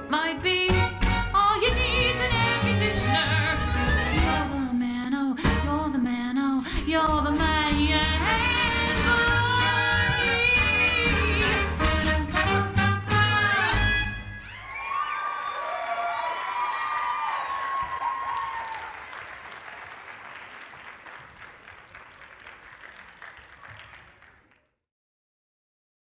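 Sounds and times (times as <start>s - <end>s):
live band playing: 0.0s - 4.7s, 7.1s - 14.5s.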